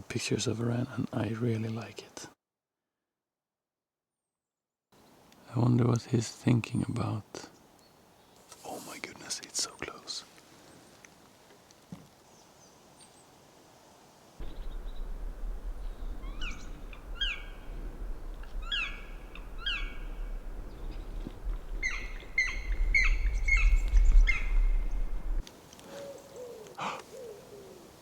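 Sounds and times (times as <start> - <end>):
low rumble: 14.4 - 25.4
songbird chirping: 14.4 - 28.0.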